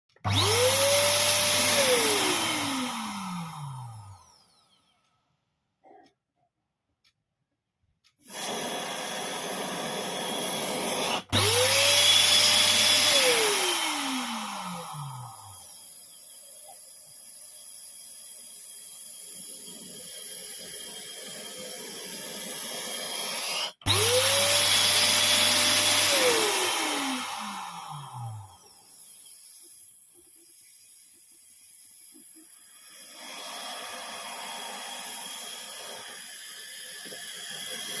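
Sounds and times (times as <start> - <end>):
electric air pump running: 0.2 - 4.7, 8.2 - 38.0
pump motor whine: 0.2 - 4.7, 8.3 - 16.8, 22.8 - 29.8.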